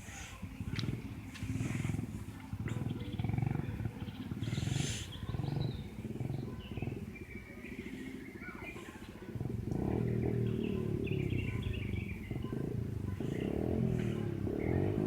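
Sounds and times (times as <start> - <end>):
dirt bike engine puttering: 9.4 - 15.0.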